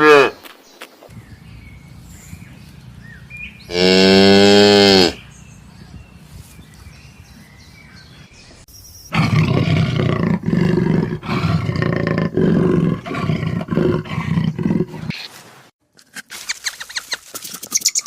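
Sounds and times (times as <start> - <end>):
big cat roaring: 3.6 - 5.2, 9.1 - 15.1.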